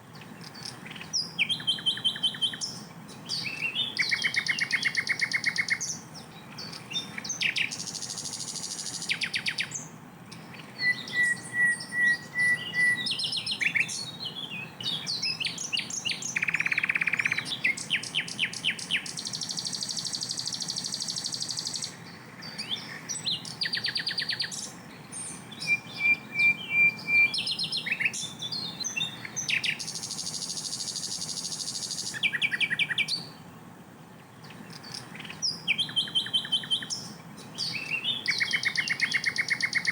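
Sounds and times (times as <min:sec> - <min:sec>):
flycatcher singing: 0:00.0 - 0:33.4, 0:34.5 - 0:39.9.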